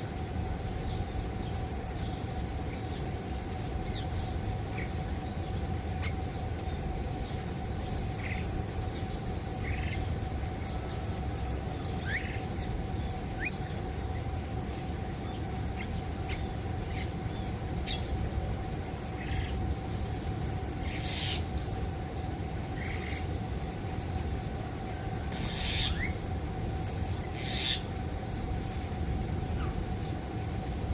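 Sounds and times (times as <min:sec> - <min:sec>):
faint hum: 0:00.0 - 0:30.9
low background noise: 0:00.0 - 0:30.9
birds chirping: 0:00.1 - 0:30.9
rasping bird calls: 0:25.4 - 0:26.2, 0:27.3 - 0:27.9.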